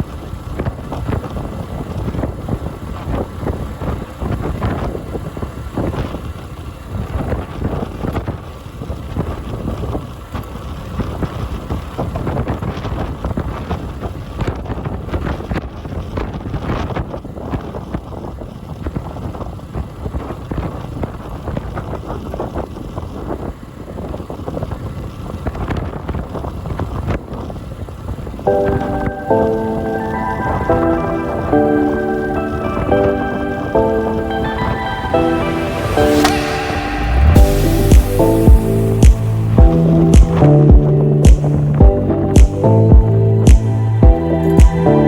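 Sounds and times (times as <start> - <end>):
wind buffeting microphone: 0.0 - 30.7.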